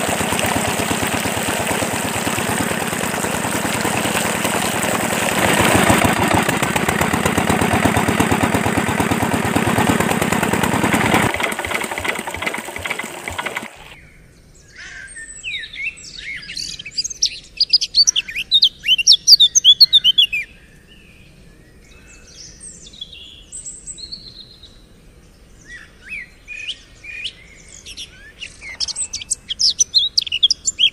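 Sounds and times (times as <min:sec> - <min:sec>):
model engine water pump chattering: 0:00.0 - 0:14.0.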